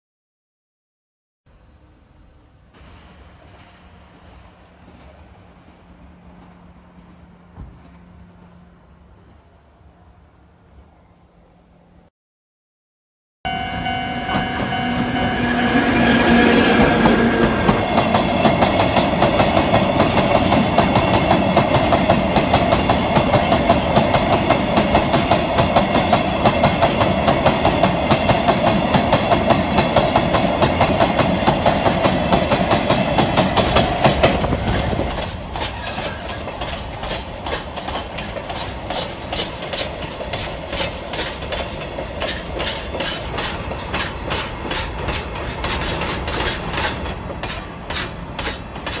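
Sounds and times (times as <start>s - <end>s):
steady pitched tone: 13.5s - 18.5s
train wheels clicking over rail joints: 16.8s - 49.0s.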